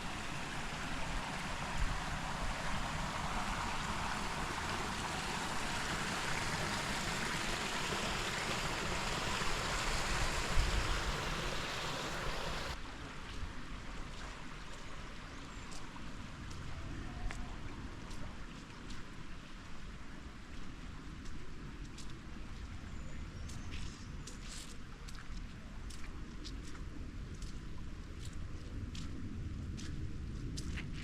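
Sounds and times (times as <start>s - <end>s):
creek water rushing: 0.0s - 12.8s.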